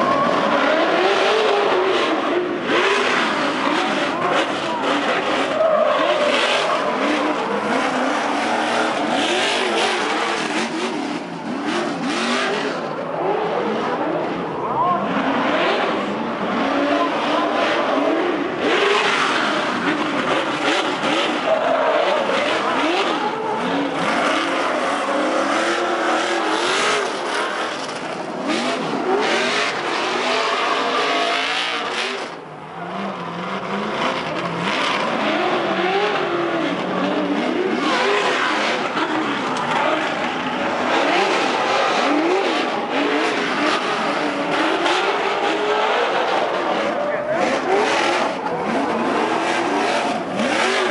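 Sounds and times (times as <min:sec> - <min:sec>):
truck engines revving: 0:00.0 - 0:50.9.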